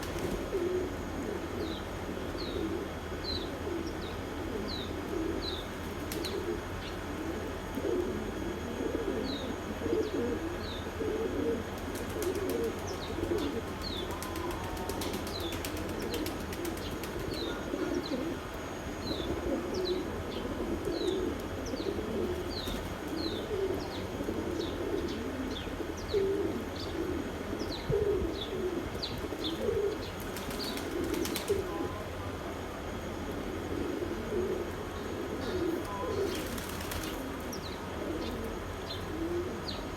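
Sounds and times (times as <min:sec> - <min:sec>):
wings flapping: 0:00.0 - 0:00.6, 0:05.8 - 0:06.4, 0:11.8 - 0:17.6, 0:29.7 - 0:31.8, 0:36.2 - 0:37.5
pigeons cooing: 0:00.0 - 0:39.9.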